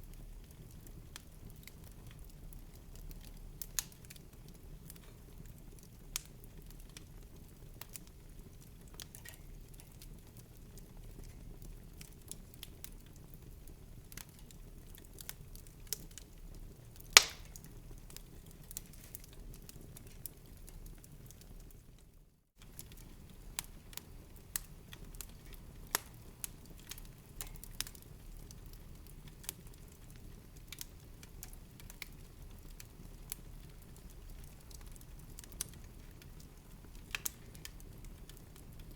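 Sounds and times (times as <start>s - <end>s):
wood fire crackling: 0.0s - 38.9s
loud pop of fire: 17.1s - 17.7s.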